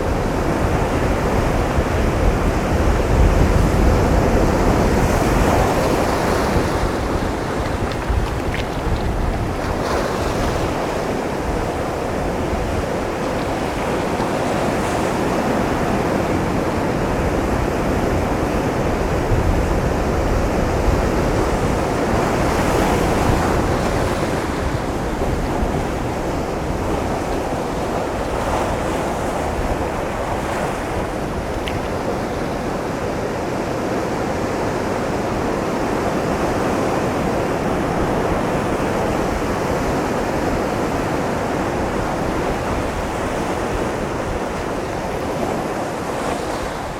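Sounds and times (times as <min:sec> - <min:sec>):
surf breaking on rocks: 0:00.6 - 0:46.9.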